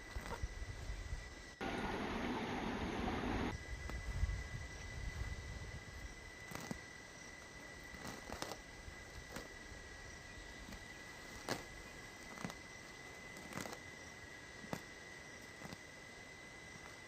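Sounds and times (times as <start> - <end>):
faint hiss: 0.0 - 6.3.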